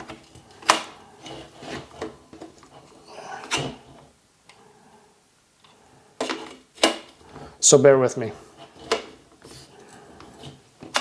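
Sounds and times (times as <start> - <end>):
rubbing scraping and knocks: 0.0 - 4.2, 8.4 - 11.0.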